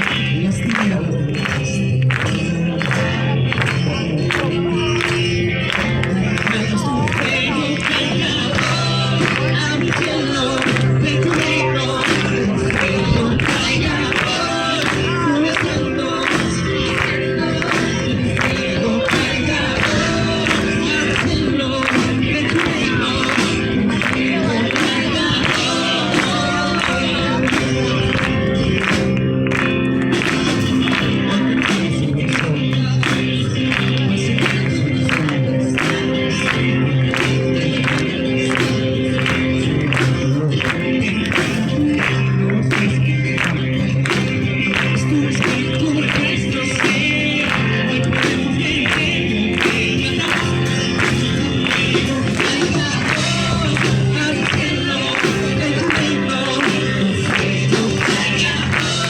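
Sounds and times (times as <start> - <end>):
music with steady beat: 0.0 - 59.0
group singing worship song: 5.9 - 28.8, 45.8 - 59.0.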